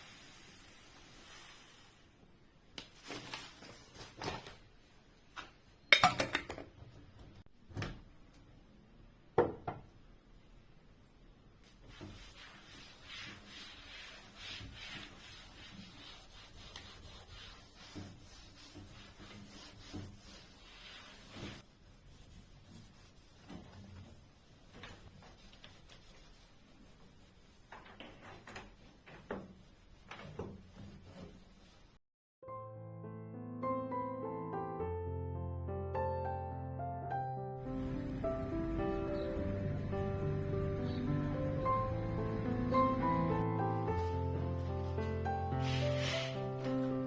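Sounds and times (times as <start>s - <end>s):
rubbing strokes on a surface: 0.0s - 2.2s, 11.6s - 32.0s, 37.6s - 47.0s.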